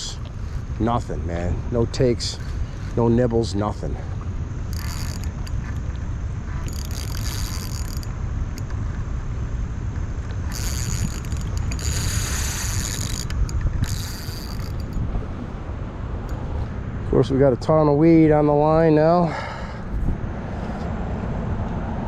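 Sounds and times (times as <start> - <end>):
wind rumble on microphone: 0.0 - 18.9, 19.8 - 22.0
fishing reel winding: 4.7 - 5.8, 6.6 - 8.7, 10.4 - 15.0.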